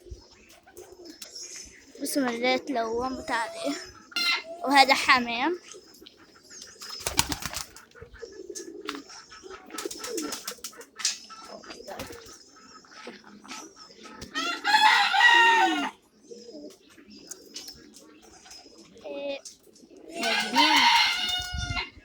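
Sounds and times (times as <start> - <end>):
pigeons cooing: 0.0 - 22.0
rooster crowing: 14.4 - 16.0, 20.2 - 21.9.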